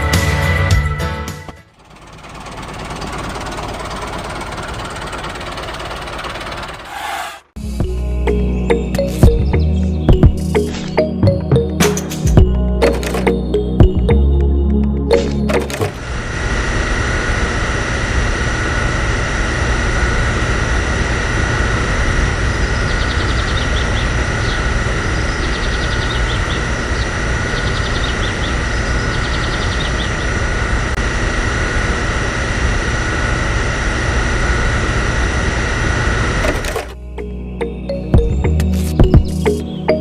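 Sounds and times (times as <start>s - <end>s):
small electric motor whining: 15.6s - 37.0s.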